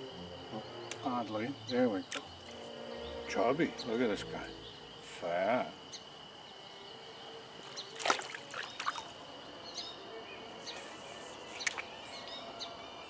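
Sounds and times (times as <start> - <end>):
high insect drone: 0.0 - 13.0
stream water splashing: 2.0 - 2.7, 7.6 - 9.3, 11.4 - 12.2.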